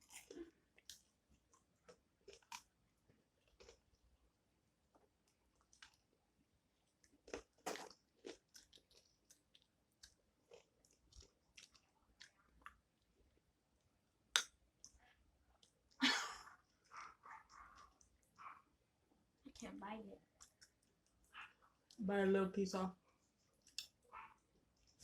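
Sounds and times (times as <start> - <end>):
chewing crunchy chocolate bar: 0.0 - 4.0, 4.9 - 6.2, 6.8 - 13.4, 20.3 - 22.0.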